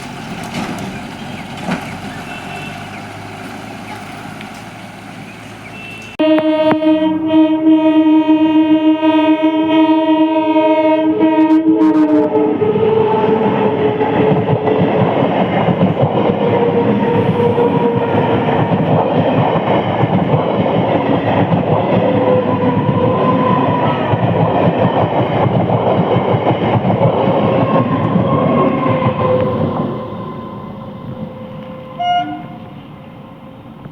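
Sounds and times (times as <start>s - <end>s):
train wheel and rail noise: 0.0s - 33.9s
train horn blast: 5.6s - 14.4s, 28.5s - 33.3s.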